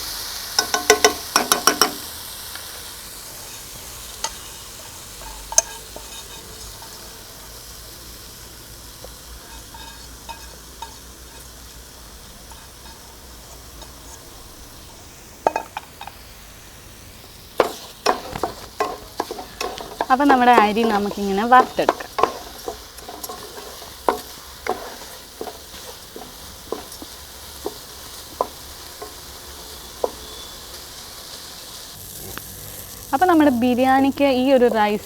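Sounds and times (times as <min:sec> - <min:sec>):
rice sizzling in a pan: 0:00.0 - 0:35.0
spoon clicking against pan: 0:00.6 - 0:02.1.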